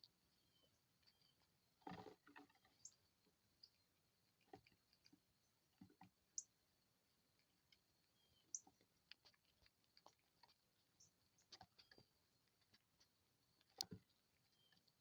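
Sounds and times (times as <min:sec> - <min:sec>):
faint clicks and taps: 0:08.5 - 0:15.0.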